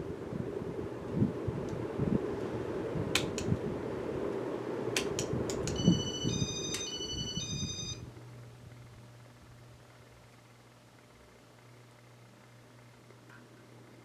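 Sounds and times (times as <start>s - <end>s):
ceiling fan rushing: 0.0s - 14.0s
low steady hum: 0.0s - 14.0s
sharp clicks: 5.0s - 5.8s
electronic beep melody: 5.7s - 8.0s.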